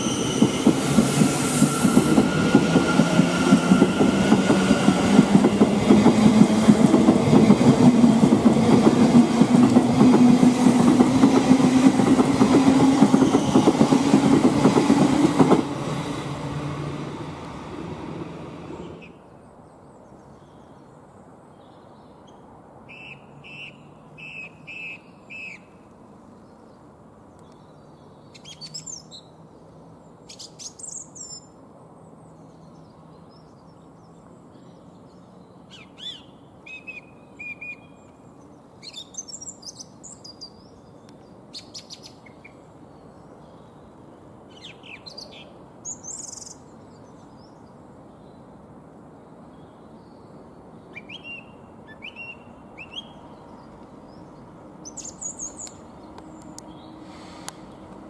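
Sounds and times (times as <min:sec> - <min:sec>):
diesel locomotive rumble: 0:00.0 - 0:19.0
small birds chirping: 0:49.5 - 0:57.9.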